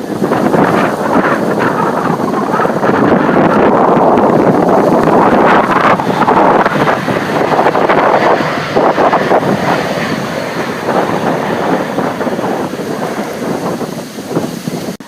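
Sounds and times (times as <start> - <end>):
jet engines roaring: 0.0 - 15.0
wind buffeting microphone: 0.0 - 15.0.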